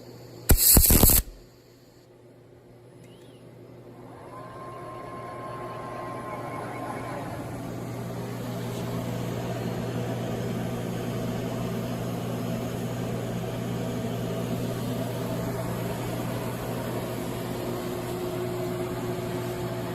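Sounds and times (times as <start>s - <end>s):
welding hiss: 0.0s - 1.6s
welding electrical hum: 0.0s - 2.1s, 4.7s - 19.9s.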